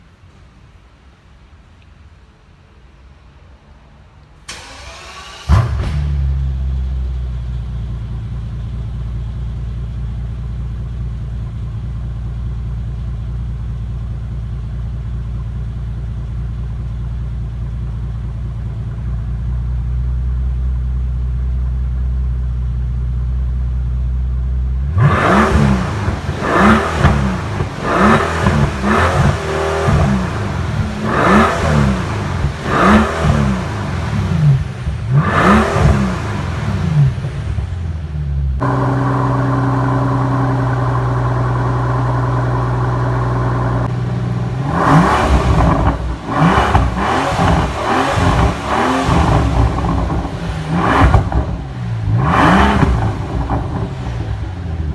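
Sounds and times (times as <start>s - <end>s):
engine starter cranking: 4.5s - 6.6s
car engine idling and revving: 4.5s - 54.9s.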